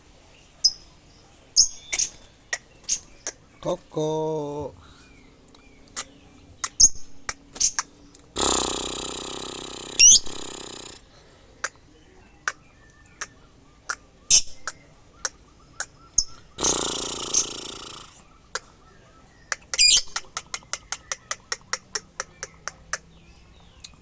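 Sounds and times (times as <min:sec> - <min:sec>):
harsh noisy bird calls: 0:00.0 - 0:24.0
pet bird chirps and clicks: 0:01.6 - 0:03.4, 0:05.4 - 0:11.0, 0:11.6 - 0:18.6, 0:19.5 - 0:24.0.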